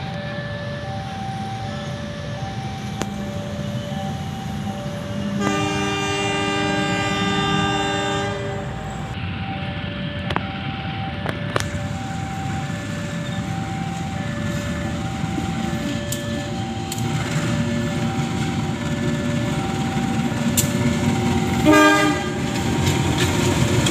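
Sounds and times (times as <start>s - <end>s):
level crossing warning tones: 0.0s - 23.9s
rumble of passing train: 0.0s - 23.9s
train horn blast: 5.4s - 9.2s, 21.6s - 22.7s
wheels clacking over rail joints: 11.6s - 23.9s.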